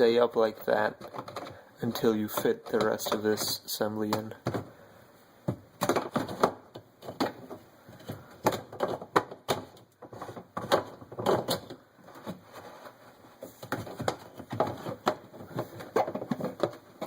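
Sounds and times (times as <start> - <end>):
plastic parts clicking and knocking: 0.0 - 17.0.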